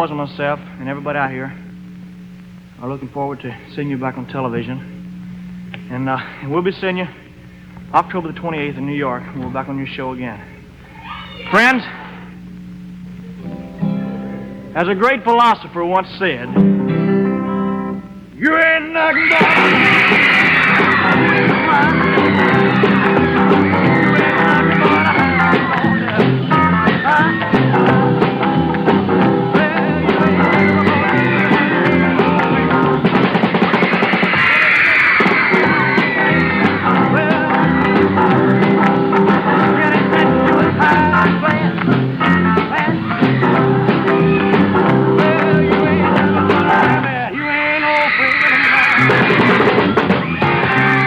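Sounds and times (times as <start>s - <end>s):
drums: 0.0s - 51.0s
electric guitar: 10.6s - 15.2s, 16.4s - 51.0s
man singing: 18.4s - 33.1s, 34.3s - 49.8s.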